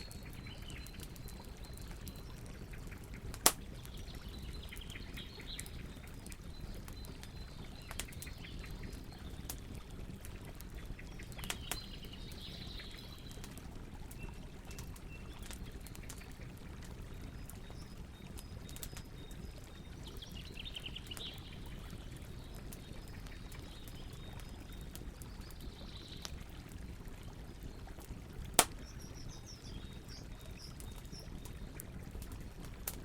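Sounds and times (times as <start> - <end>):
birds chirping: 0.0 - 10.1
campfire crackling and popping: 0.0 - 33.0.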